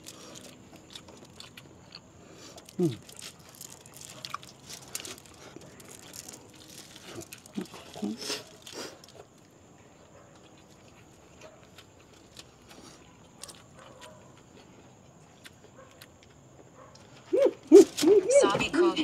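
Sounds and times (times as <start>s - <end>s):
eating crunches: 0.0s - 18.3s
wrapper crinkling: 2.6s - 9.4s.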